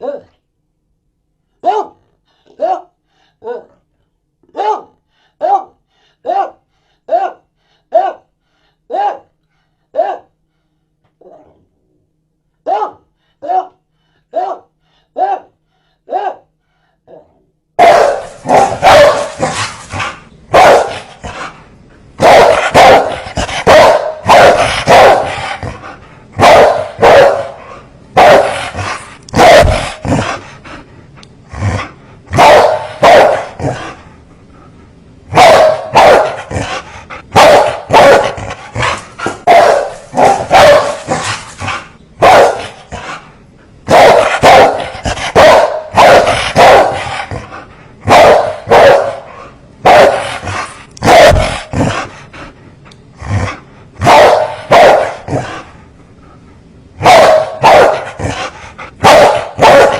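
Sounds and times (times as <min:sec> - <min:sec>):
dogs barking fiercely: 0:17.8 - 0:21.6, 0:22.2 - 0:30.7, 0:31.7 - 0:34.0, 0:35.3 - 0:52.2, 0:53.4 - 0:55.7, 0:57.0 - 0:59.9.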